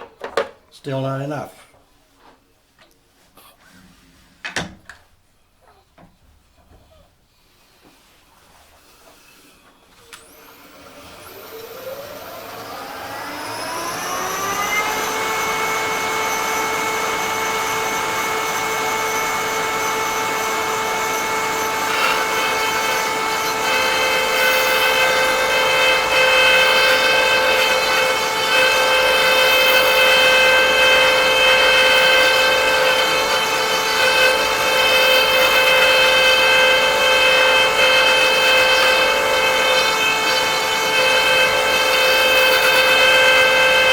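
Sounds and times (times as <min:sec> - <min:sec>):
electric motor whine: 0:10.2 - 0:43.9.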